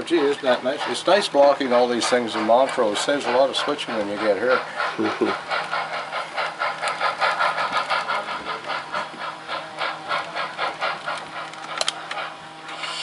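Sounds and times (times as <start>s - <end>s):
model steam locomotive chuffing: 0.0s - 13.0s.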